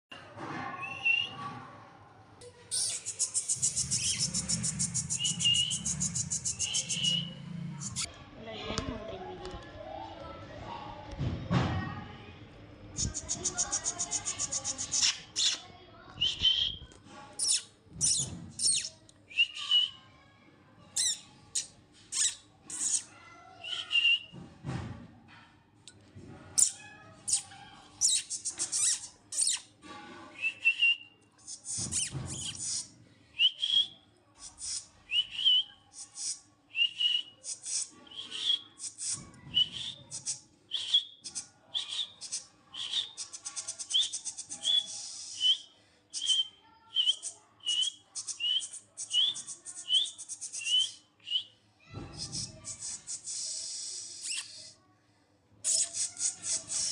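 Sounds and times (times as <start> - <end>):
lovebirds chirping and squawking: 2.7 - 8.1, 13.0 - 15.6, 17.4 - 18.9, 21.0 - 23.1, 55.7 - 56.9.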